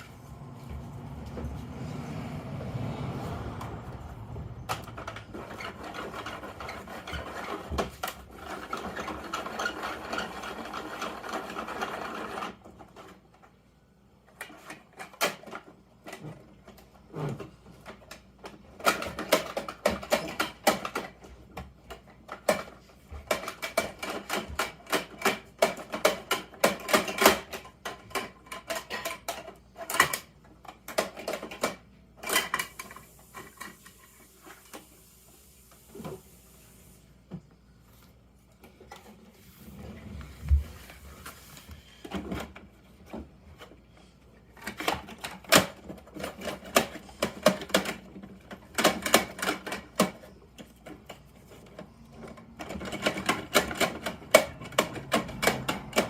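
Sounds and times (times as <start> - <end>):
plastic toy clicking and rattling: 17.8 - 21.3, 21.9 - 33.9, 44.6 - 56.0.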